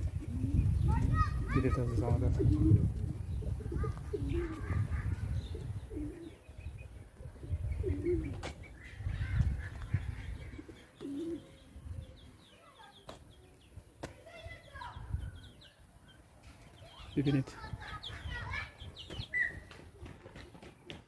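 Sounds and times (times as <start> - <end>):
pigeons cooing: 0.0 - 12.4
small birds chirping: 0.0 - 21.0.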